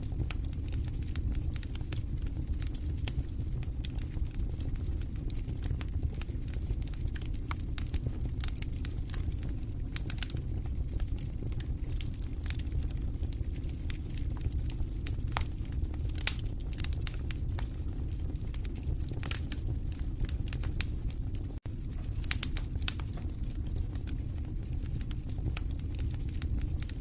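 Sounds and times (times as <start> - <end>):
burning logs snapping and popping: 0.0 - 27.0
low rumble of flames: 0.0 - 27.0
wood fire crackling: 0.0 - 27.0.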